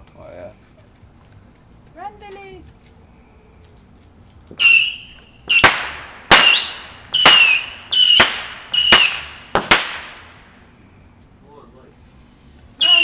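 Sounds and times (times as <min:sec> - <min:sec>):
fireworks bangs with whistles: 0:04.6 - 0:10.7, 0:12.8 - 0:13.0.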